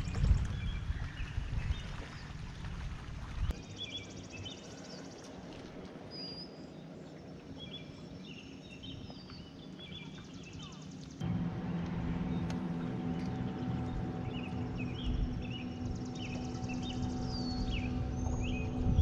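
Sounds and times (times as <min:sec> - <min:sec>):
steady low hum: 0:11.0 - 0:19.0
low rumble: 0:11.2 - 0:19.0
birds chirping and whistling: 0:11.6 - 0:19.0.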